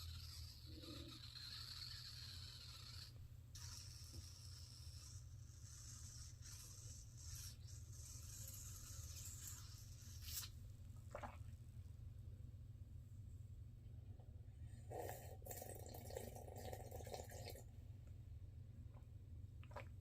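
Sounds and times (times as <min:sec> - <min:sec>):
slurping coffee: 0:00.0 - 0:10.5, 0:14.9 - 0:17.6
sip or gulp: 0:11.1 - 0:11.5, 0:14.9 - 0:17.6, 0:19.6 - 0:20.0.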